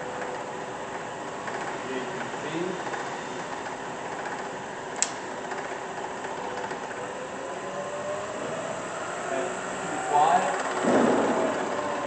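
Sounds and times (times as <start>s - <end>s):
milling machine spindle whirring: 0.0s - 12.0s
sharp click: 5.0s - 5.6s.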